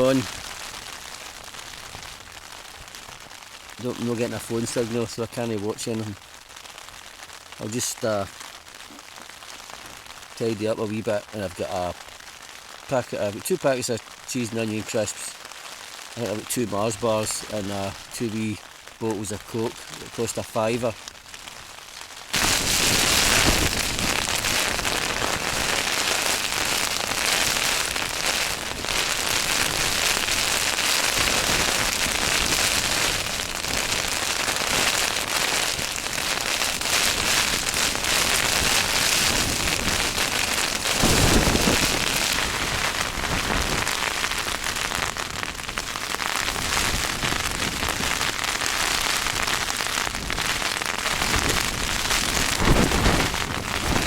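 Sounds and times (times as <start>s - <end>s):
rain drumming on a tent: 0.0s - 54.0s.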